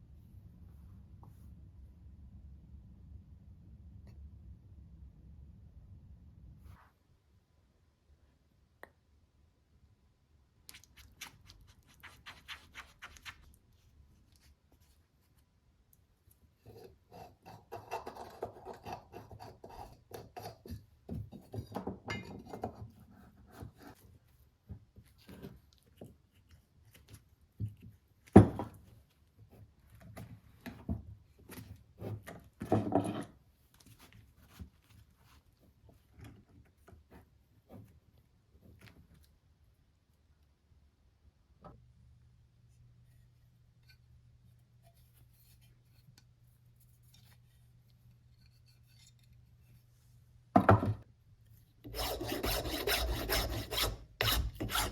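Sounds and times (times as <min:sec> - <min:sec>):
rubbing and scraping by hand: 0:51.8 - 0:54.9.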